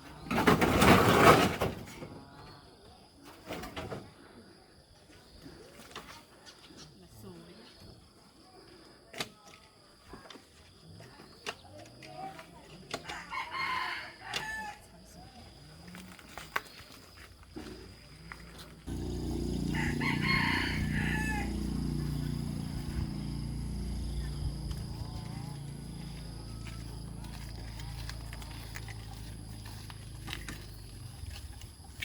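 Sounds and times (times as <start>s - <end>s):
rooster crowing: 13.1s - 14.8s, 18.9s - 23.5s.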